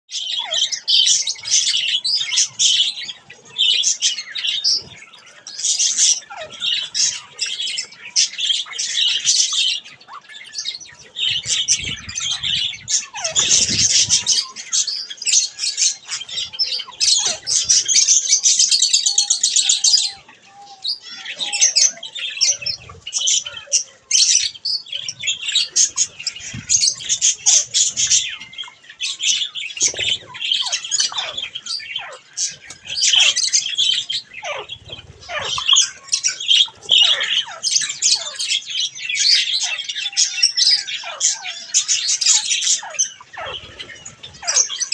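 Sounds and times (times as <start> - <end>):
budgerigars chattering and squawking: 0.1 - 44.9
wings fluttering: 10.9 - 14.8.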